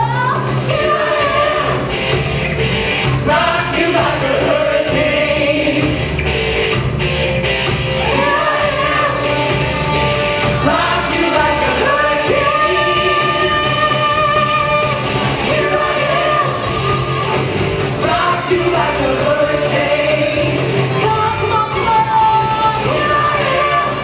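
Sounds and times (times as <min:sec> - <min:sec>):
rock band with drums: 0:00.0 - 0:24.0.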